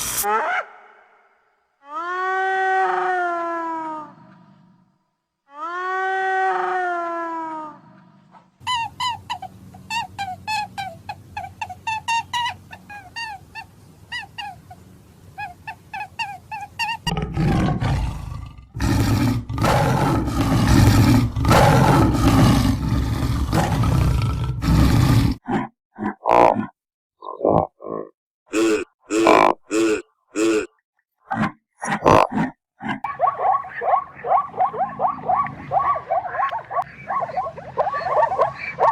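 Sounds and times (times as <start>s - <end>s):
big animal roaring: 17.1s - 26.7s
high chirping animal calls: 33.1s - 38.9s.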